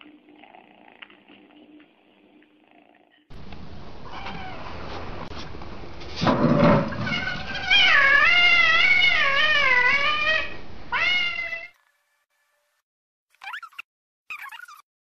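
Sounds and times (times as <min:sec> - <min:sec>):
cat yowling: 0:07.0 - 0:11.8.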